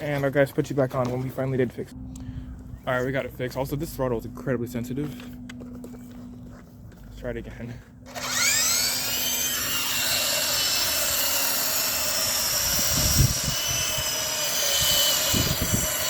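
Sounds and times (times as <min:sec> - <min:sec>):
toy helicopter motor whine: 0:08.1 - 0:16.0.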